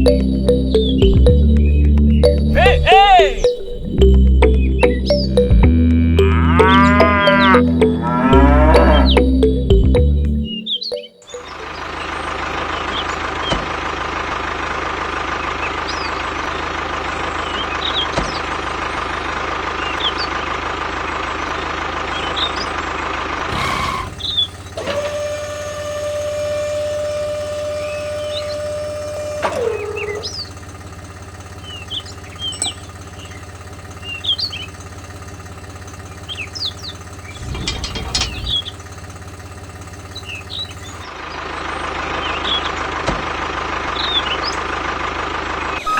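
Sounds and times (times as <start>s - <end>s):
held tone dropping in pitch: 0.0s - 11.7s
tractor engine running: 0.0s - 45.9s.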